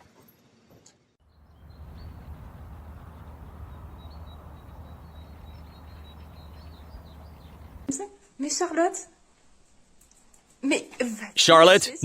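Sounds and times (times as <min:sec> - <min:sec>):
small birds chirping: 0:01.3 - 0:07.9
steady low hum: 0:01.3 - 0:07.9.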